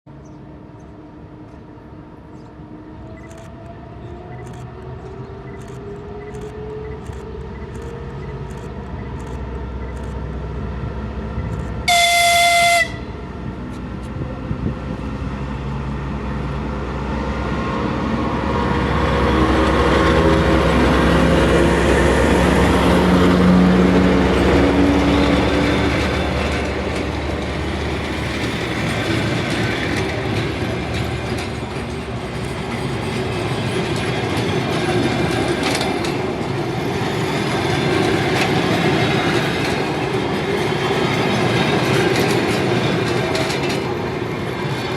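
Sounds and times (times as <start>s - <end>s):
diesel locomotive passing: 0.1s - 44.9s
train horn blast: 11.9s - 13.3s
wheels clicking over rail joints: 25.2s - 44.9s.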